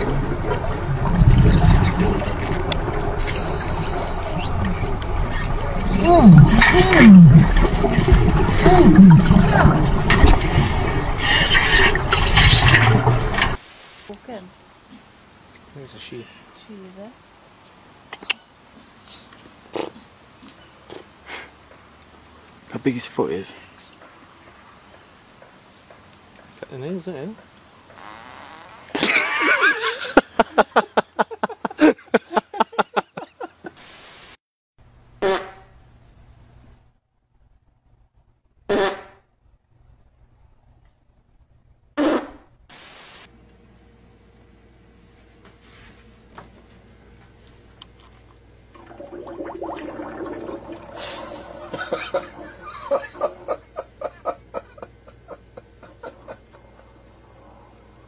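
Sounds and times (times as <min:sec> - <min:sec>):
sputtering fart: 0:27.9 - 0:29.1, 0:42.0 - 0:42.5
short loud fart blast: 0:35.2 - 0:35.7, 0:38.7 - 0:39.3, 0:42.0 - 0:42.5.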